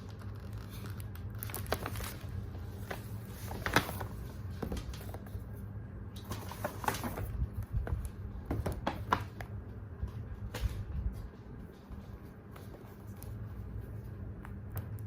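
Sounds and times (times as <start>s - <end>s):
packaging rustling and clicking: 0.0s - 5.2s
steady low hum: 0.0s - 15.0s.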